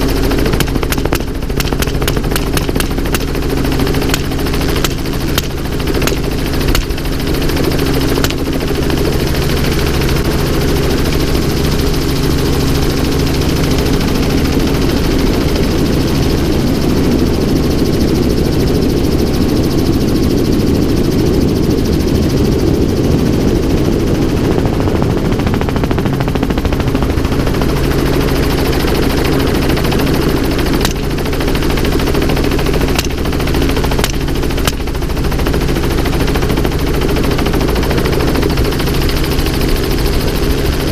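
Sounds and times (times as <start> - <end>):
helicopter rotor droning: 0.0 - 40.9
gunshots: 0.5 - 3.4, 4.0 - 7.2.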